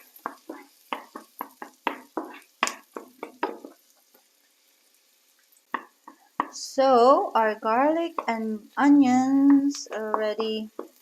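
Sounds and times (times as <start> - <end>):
utensil scraping a frying pan: 0.0 - 3.8.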